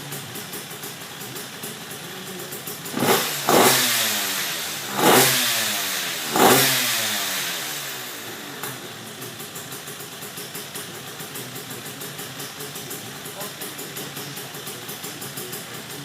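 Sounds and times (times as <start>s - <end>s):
two-stroke engine revving and idling: 0.0s - 16.0s.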